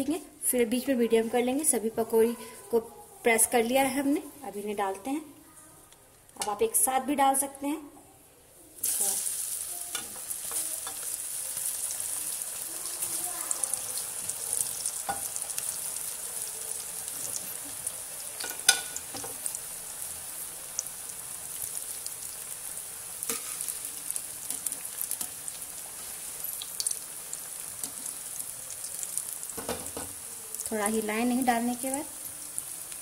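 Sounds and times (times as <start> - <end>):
pakoras sizzling in hot oil: 8.8 - 33.0.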